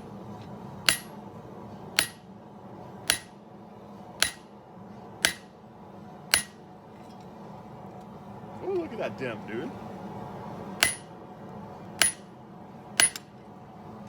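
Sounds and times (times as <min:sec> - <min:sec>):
hammer ringing on anvil: 0:00.9 - 0:01.2, 0:02.0 - 0:02.2, 0:03.1 - 0:03.3, 0:04.2 - 0:04.4, 0:05.2 - 0:05.5, 0:06.3 - 0:06.6, 0:10.8 - 0:11.1, 0:12.0 - 0:12.3, 0:13.0 - 0:13.2.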